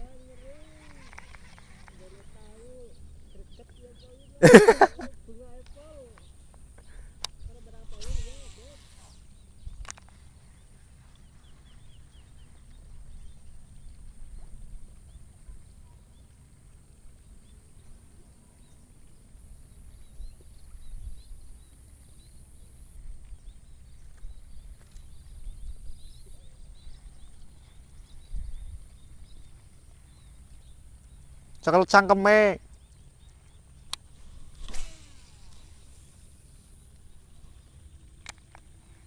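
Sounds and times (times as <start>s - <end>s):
faint chirps: 0.0s - 39.0s
wind rumbling on microphone: 5.4s - 31.6s
high-pitched insect drone: 7.8s - 10.0s.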